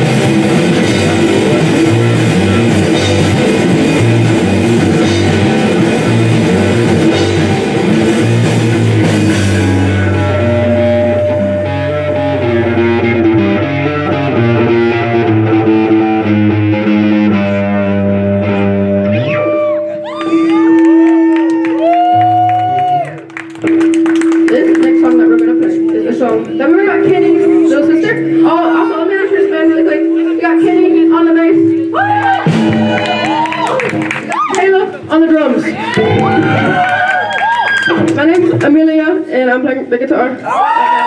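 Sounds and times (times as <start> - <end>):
drum kit: 0.0 - 16.2, 32.0 - 34.4, 35.5 - 38.8
bass guitar: 0.0 - 39.2
electric guitar: 0.0 - 41.0.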